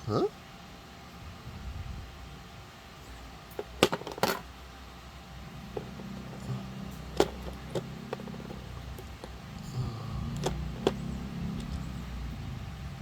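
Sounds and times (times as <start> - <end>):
low steady hum: 0.0 - 13.0
small plastic parts clicking: 10.4 - 11.8.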